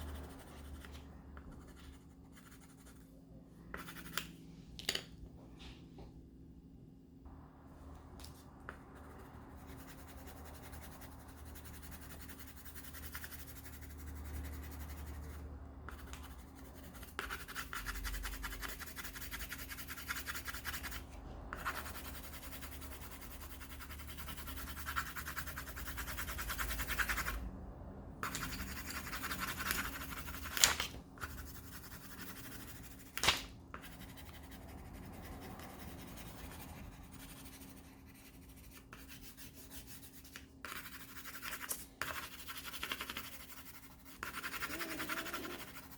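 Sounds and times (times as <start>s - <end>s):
pencil shading on paper: 8.7s - 27.4s, 28.2s - 30.6s, 31.2s - 45.9s.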